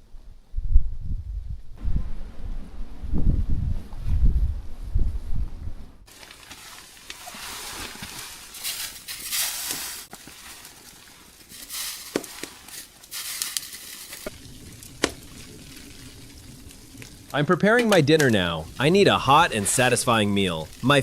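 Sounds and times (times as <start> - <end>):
food sizzling in a pan: 11.5 - 17.2.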